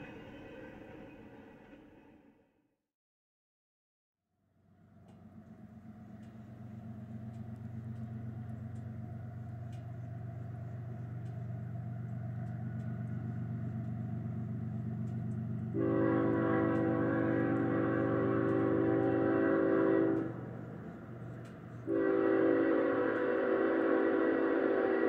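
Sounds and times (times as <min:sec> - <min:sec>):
locomotive engine drone: 0:04.5 - 0:25.0
multi-tone air horn: 0:15.8 - 0:20.4, 0:21.9 - 0:25.0.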